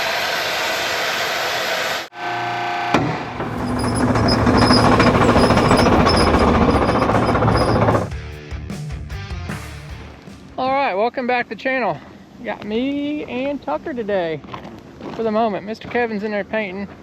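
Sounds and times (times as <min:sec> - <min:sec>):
heavy diesel machinery running: 0:03.2 - 0:08.1.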